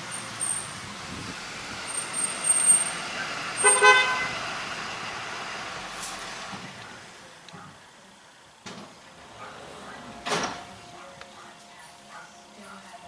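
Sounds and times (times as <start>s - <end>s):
short horn toot: 3.6s - 4.4s
steady background noise: 5.7s - 13.0s.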